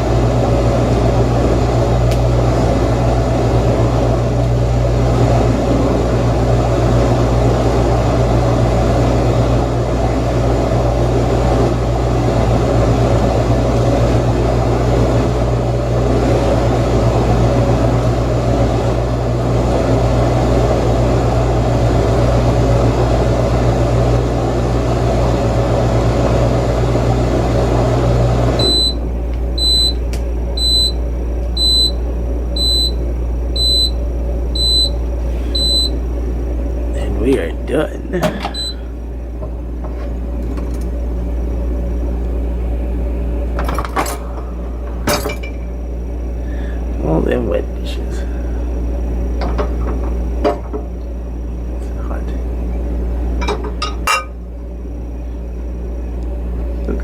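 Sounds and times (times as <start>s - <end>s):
dishwasher humming: 0.0s - 57.0s
dishwasher beeps: 28.6s - 29.0s, 29.6s - 30.0s, 30.6s - 31.0s, 31.6s - 32.0s, 32.6s - 33.0s, 33.6s - 34.0s, 34.6s - 36.0s, 38.2s - 38.8s.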